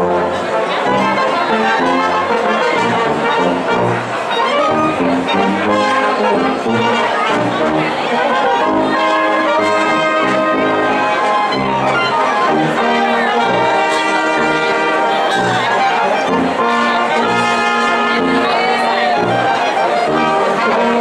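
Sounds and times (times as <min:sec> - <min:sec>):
trumpets and trombones playing: 0:00.0 - 0:21.0
low bass line: 0:09.6 - 0:13.7.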